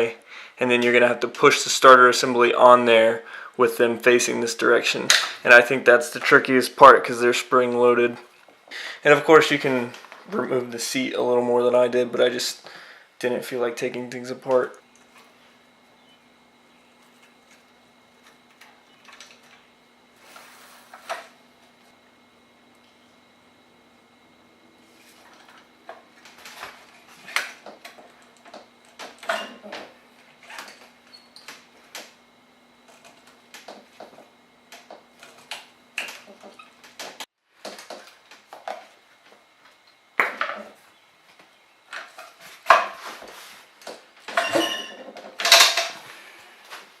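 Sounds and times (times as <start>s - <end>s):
metal tools clinking and rattling: 44.3s - 46.0s.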